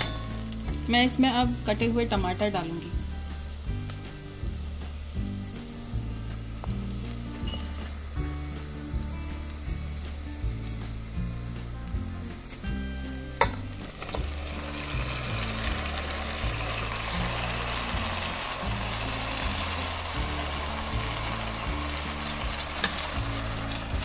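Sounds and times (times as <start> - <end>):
soft background music: 0.0 - 24.0
vegetables sizzling in pot: 0.0 - 24.0.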